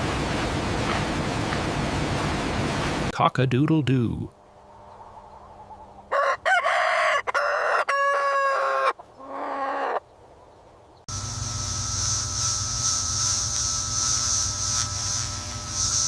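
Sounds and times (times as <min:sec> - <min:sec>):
rooster crowing: 0:06.1 - 0:10.0
background hiss: 0:11.1 - 0:16.0.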